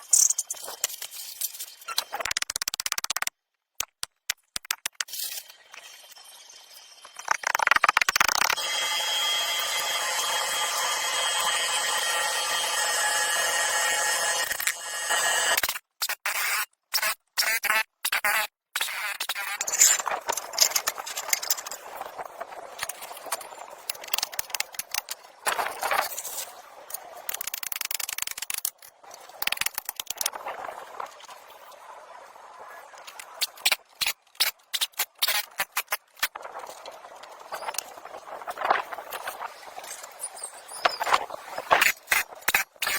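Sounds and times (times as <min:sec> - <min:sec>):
scraping and rattling metal parts: 0:19.5 - 0:26.4.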